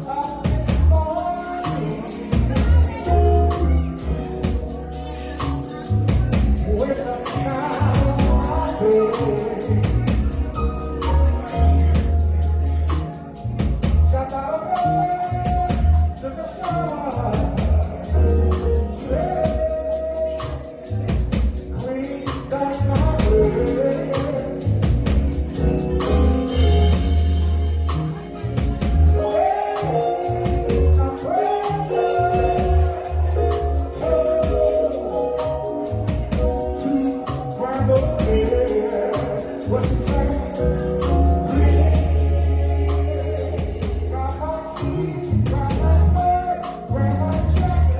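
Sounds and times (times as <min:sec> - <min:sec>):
band playing: 0:00.0 - 0:47.9
bass and drums: 0:00.0 - 0:47.9
solo voice singing: 0:00.0 - 0:47.9.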